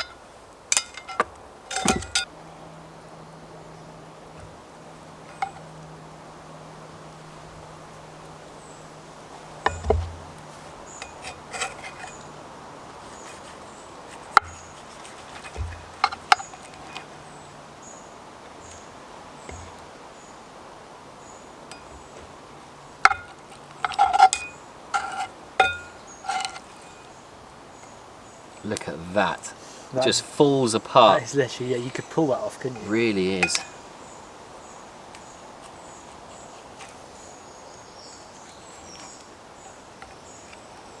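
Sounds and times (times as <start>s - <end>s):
utensils clinking on cast iron pot: 0.0s - 2.3s, 5.3s - 5.7s, 9.6s - 12.4s, 14.3s - 17.1s, 21.7s - 22.2s, 23.0s - 27.1s, 32.7s - 33.8s.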